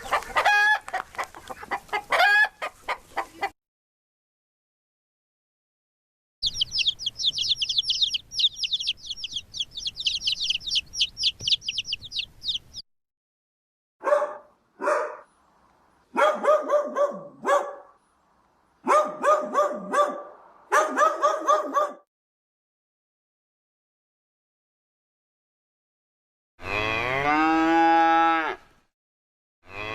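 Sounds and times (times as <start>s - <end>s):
rapid high-pitched animal chirping: 6.4s - 12.8s.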